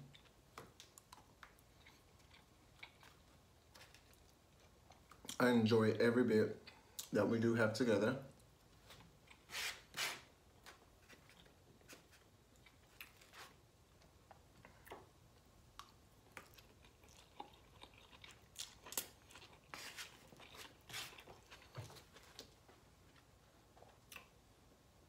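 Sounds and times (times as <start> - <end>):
person chewing: 0.1 - 5.4, 11.1 - 22.5.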